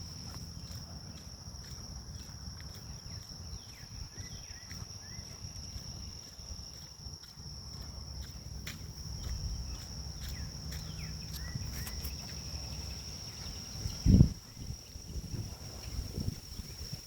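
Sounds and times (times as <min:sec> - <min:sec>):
footsteps on walkway: 0:00.0 - 0:16.6
grass insects trilling: 0:00.0 - 0:17.0
low wind rumble: 0:08.1 - 0:17.0
bird chirps: 0:09.2 - 0:14.0.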